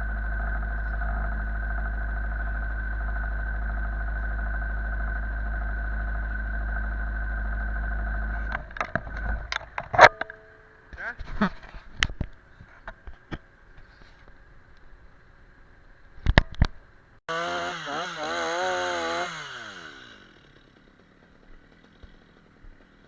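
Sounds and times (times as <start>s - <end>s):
engine idling with deep rumble: 0.0s - 10.0s
sharp clicks and knocks: 8.2s - 10.5s.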